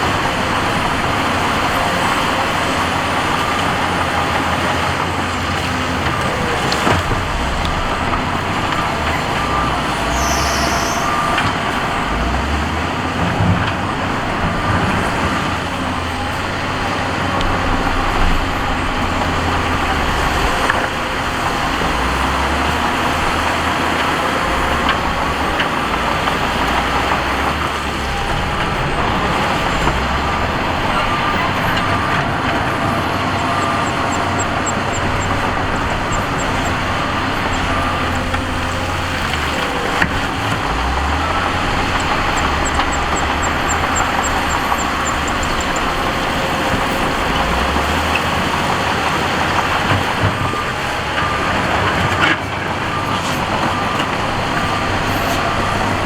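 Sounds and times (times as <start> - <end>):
diesel earthmoving machinery running: 0.0 - 56.0.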